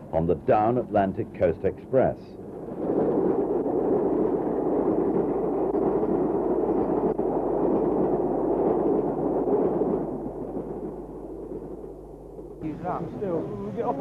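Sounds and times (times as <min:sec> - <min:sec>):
steam train rushing past: 0:12.5 - 0:14.0.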